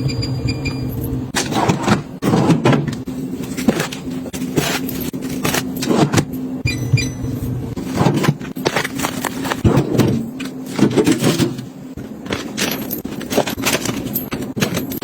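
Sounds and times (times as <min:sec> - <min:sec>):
items clicking and knocking: 0:01.3 - 0:06.5, 0:07.8 - 0:15.0
plastic packaging crinkling: 0:08.6 - 0:09.6.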